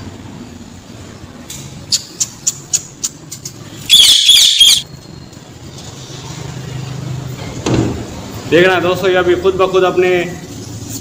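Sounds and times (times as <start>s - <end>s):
shrill cage-bird call: 3.7s - 5.3s.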